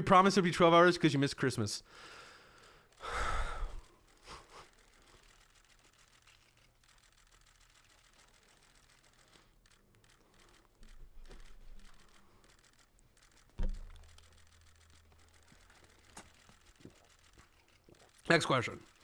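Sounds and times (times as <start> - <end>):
small clicks: 1.9 - 19.0
low hum: 5.3 - 18.2
sharp knock: 13.6 - 14.0.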